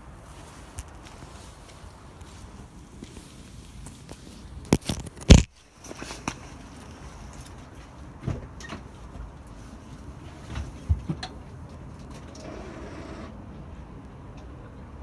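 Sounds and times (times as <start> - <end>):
low background noise: 0.0 - 15.0
knocks and thumps: 10.5 - 11.4.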